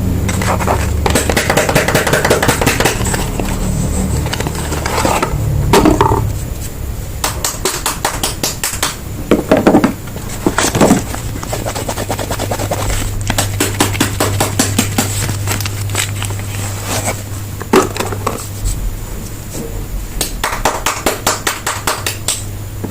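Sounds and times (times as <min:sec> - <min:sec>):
scrapes and taps: 0:00.3 - 0:03.6
packaging crinkling: 0:10.1 - 0:18.4.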